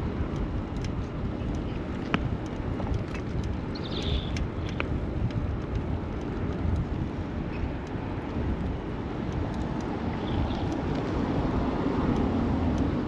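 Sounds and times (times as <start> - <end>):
city traffic rumble: 0.0 - 13.0
faint ticks: 0.0 - 13.0
wind on microphone: 0.0 - 13.0.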